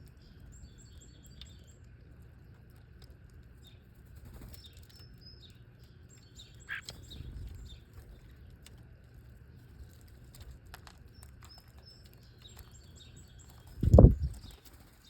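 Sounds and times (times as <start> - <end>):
small birds chirping: 0.0 - 15.0
steady low rumble: 6.5 - 11.2, 13.5 - 14.6.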